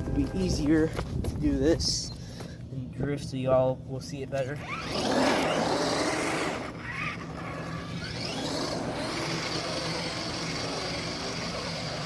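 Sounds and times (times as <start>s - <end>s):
electric motor whining: 4.6s - 12.0s.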